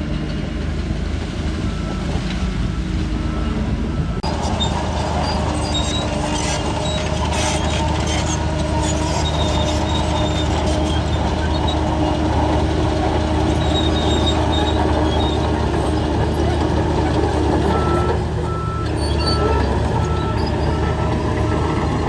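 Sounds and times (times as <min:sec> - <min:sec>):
bulldozer diesel engine droning: 0:00.0 - 0:22.0
short high-pitched squeaks: 0:04.2 - 0:12.2, 0:13.4 - 0:16.6.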